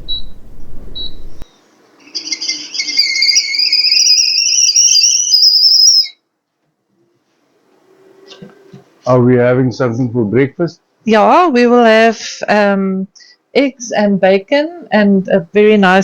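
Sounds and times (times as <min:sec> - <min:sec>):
kettle whistling: 0:00.0 - 0:06.2.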